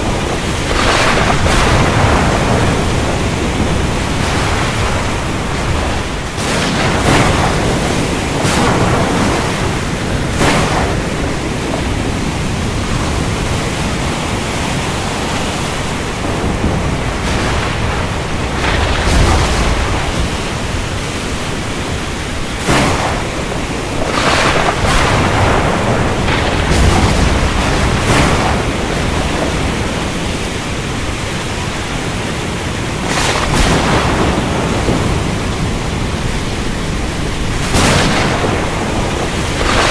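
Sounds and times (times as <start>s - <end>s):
rain: 0.0s - 39.9s
thunder rumbles: 0.0s - 39.9s
waves: 0.0s - 39.9s
wind: 0.0s - 39.9s
sharp cracks: 0.3s - 12.0s, 16.6s - 30.5s, 33.0s - 35.5s, 37.3s - 39.9s.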